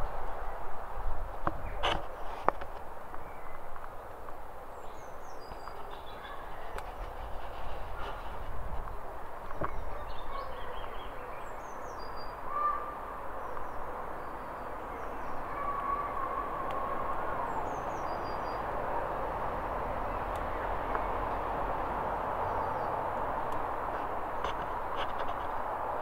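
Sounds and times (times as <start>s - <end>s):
small birds chirping: 3.1s - 18.8s.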